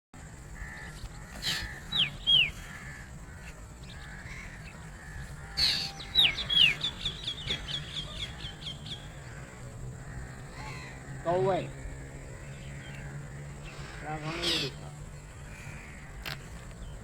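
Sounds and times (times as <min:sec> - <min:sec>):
birds whistling falling notes: 0:00.8 - 0:03.0, 0:03.9 - 0:09.5
short harsh bird call: 0:01.2 - 0:02.6.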